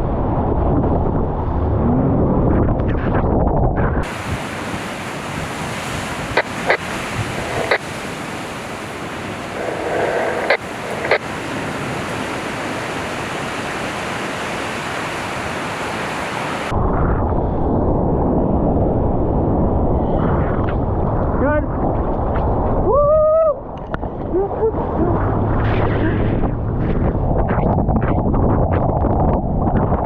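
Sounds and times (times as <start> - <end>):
wind rumble on microphone: 0.0 - 30.0
ocean surf rushing: 4.0 - 16.8.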